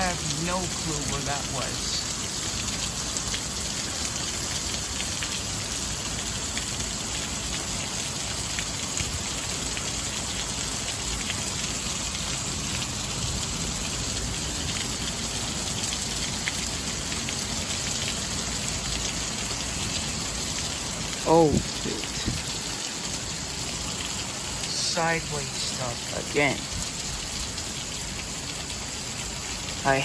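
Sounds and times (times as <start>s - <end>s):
heavy rain pouring: 0.0s - 30.0s
raindrops ticking close by: 0.0s - 30.0s.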